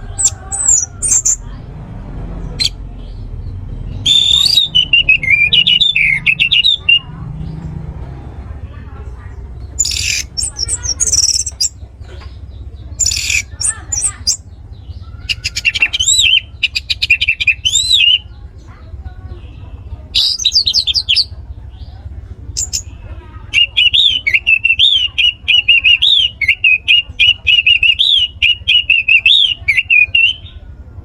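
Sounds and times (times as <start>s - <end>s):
thrush singing warbling notes: 0.0s - 8.8s.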